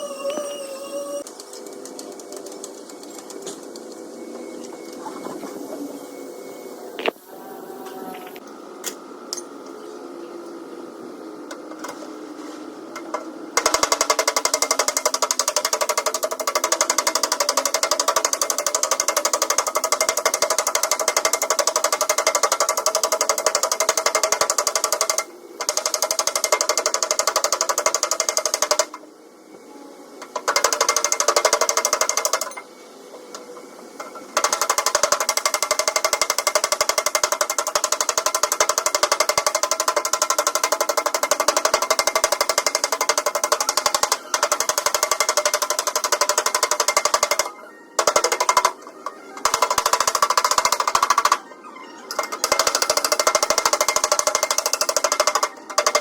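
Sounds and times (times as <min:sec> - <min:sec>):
power tool hammering chatter: 0:13.1 - 0:29.0, 0:34.0 - 0:56.0.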